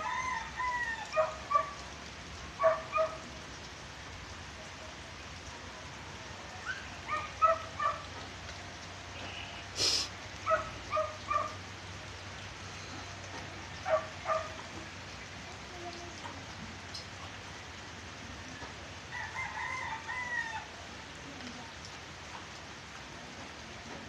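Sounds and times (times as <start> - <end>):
rain hissing: 0.0 - 24.0
dog barking: 1.1 - 1.8, 2.6 - 3.2, 7.1 - 8.0, 10.4 - 11.6, 13.8 - 14.6.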